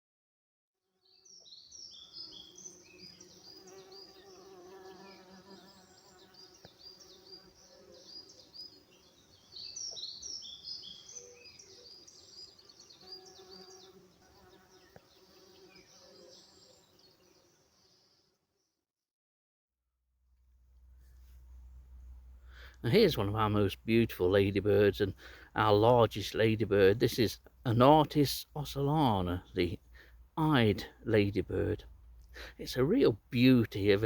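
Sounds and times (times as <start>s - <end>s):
small birds chirping: 1.0s - 18.3s, 21.1s - 34.0s
insects buzzing: 1.0s - 18.4s.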